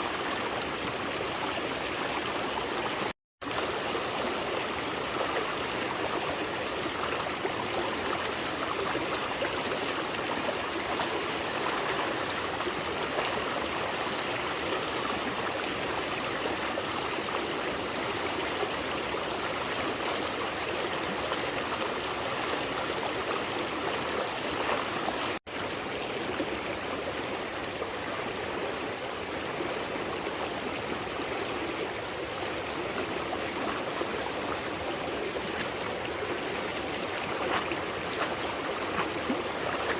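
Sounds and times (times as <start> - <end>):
stream rushing: 17.8 - 39.9.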